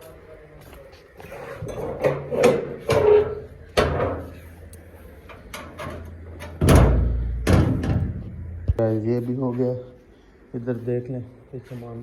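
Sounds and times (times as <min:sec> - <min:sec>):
door banging shut: 0:05.7 - 0:08.5.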